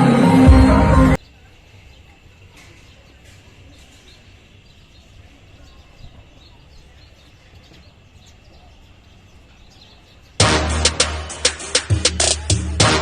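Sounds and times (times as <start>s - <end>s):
small birds chirping: 1.2s - 10.4s.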